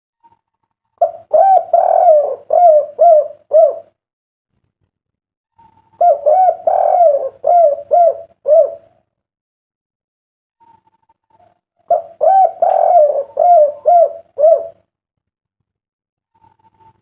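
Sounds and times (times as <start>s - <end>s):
dove cooing: 1.0s - 4.0s, 5.6s - 9.0s, 11.9s - 14.9s.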